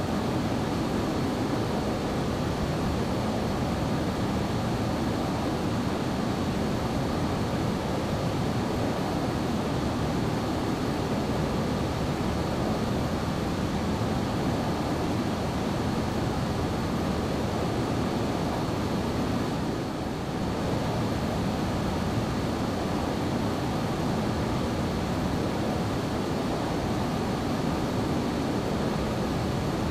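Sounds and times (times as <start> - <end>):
jet engine and airflow rush: 0.0 - 29.9.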